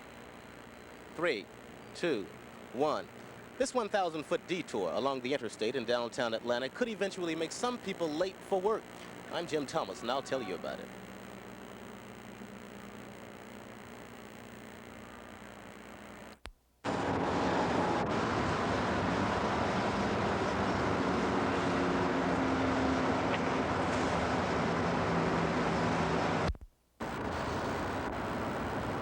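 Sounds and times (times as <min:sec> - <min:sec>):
faint engine hum: 0:00.0 - 0:29.0
highway traffic rushing: 0:16.9 - 0:29.0.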